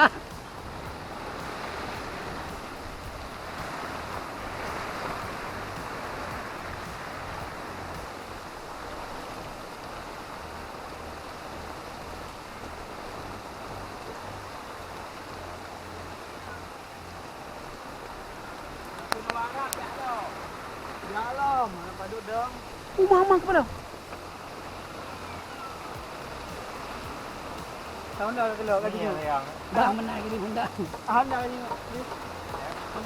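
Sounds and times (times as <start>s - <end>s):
wind buffeting microphone: 0.0s - 18.3s
heavy rain: 0.0s - 33.0s.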